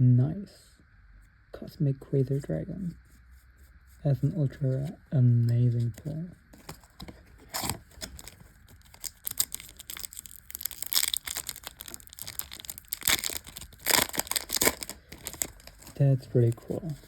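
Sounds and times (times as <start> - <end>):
foil wrapper crinkling: 6.6 - 17.0.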